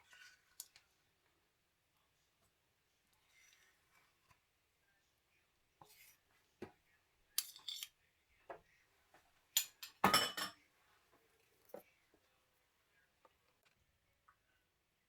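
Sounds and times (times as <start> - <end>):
utensils clicking and scraping: 7.4 - 8.0
dishes clattering: 9.6 - 10.6.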